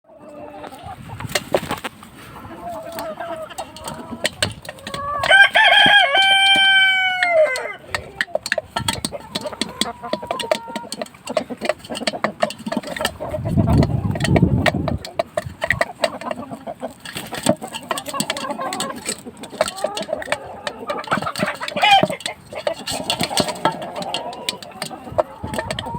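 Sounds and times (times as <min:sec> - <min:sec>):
chickens clucking: 0:00.0 - 0:25.9
rooster crowing: 0:05.0 - 0:07.9.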